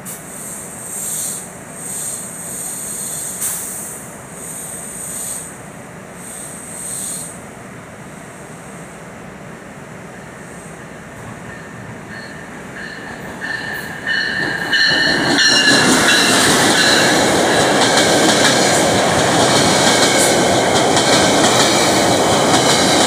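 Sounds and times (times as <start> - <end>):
high hissing bursts: 0.0 - 5.6, 6.2 - 7.4
low train rumble: 0.0 - 23.0
train approaching: 0.0 - 23.0.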